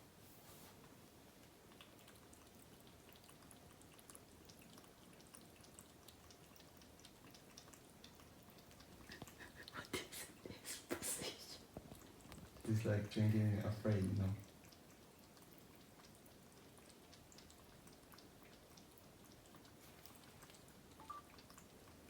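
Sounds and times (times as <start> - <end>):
cat lapping water: 1.0 - 22.0.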